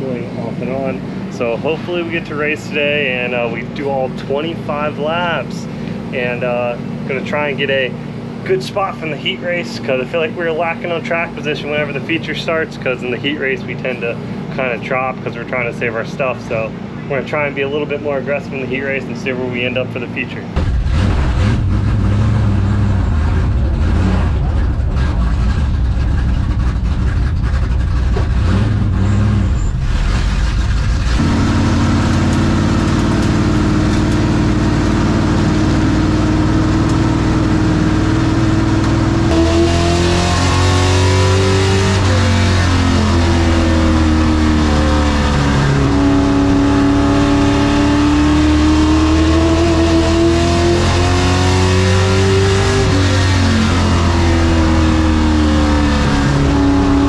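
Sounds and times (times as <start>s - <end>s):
race truck engine: 0.0s - 57.0s.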